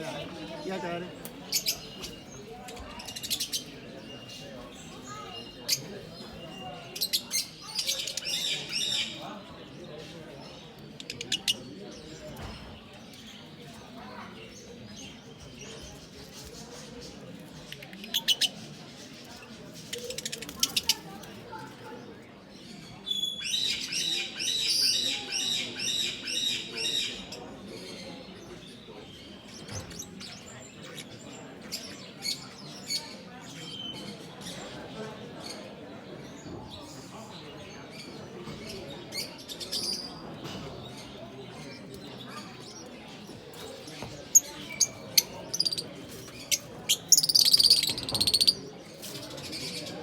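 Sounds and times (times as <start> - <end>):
cage bird chirping: 0.0 - 50.0
low background murmur: 0.0 - 50.0.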